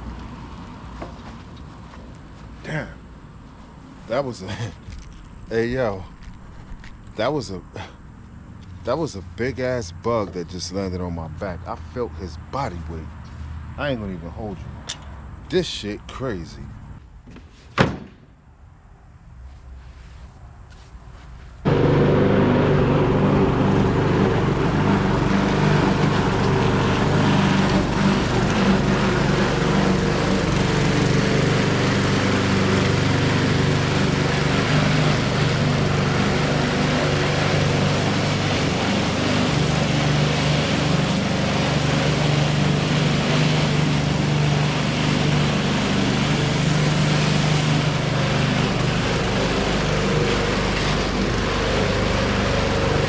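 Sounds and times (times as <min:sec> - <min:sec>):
lawn mower engine running: 0:21.6 - 0:53.0.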